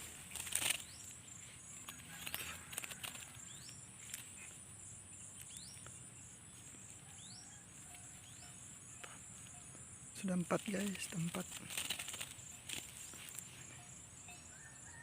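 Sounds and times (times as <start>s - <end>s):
sharp clicks and rustles: 0.0s - 4.6s, 10.5s - 13.7s
high drone of insects: 0.0s - 15.0s.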